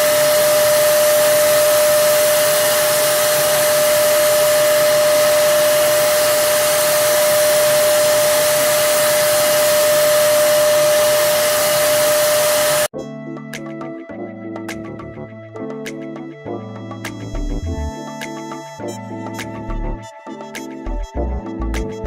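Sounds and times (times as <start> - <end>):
turbine spray gun running: 0.0 - 12.9.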